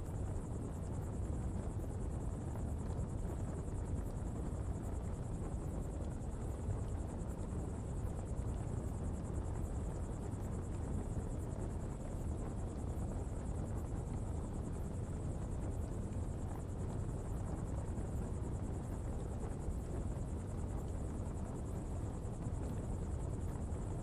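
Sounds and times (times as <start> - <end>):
fire burning with low rumble: 0.0 - 24.0.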